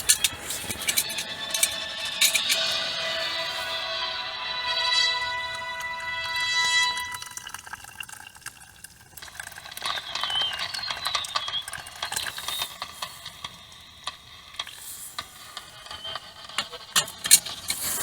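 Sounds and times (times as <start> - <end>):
liquid pouring: 4.7 - 14.8.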